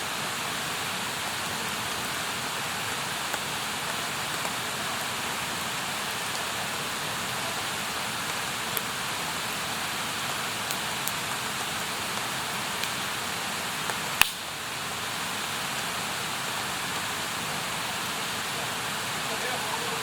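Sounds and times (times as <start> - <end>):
campfire hissing and crackling: 0.0 - 20.0
loud fire pop: 14.2 - 14.4.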